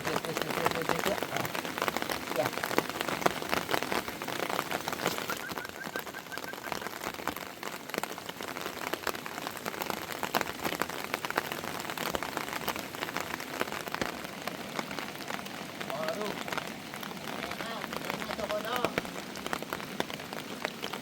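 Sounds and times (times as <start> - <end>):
heavy rain pattering: 0.0 - 21.0
faint high chirps: 5.3 - 6.9.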